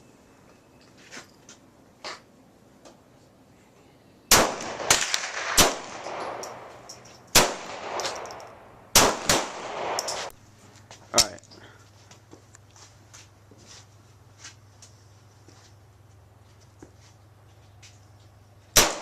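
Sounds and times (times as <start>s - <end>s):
gunshots with long echo: 4.3s - 10.2s, 18.8s - 19.0s.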